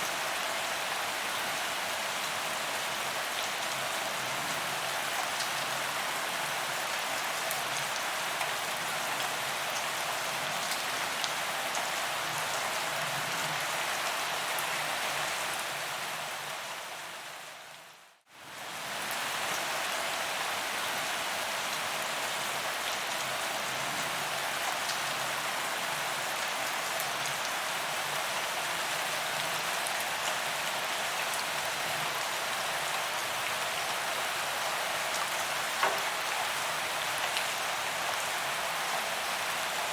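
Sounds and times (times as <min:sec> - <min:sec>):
rain on pavement: 0:00.1 - 0:39.9
rain drop ticks: 0:35.8 - 0:36.2.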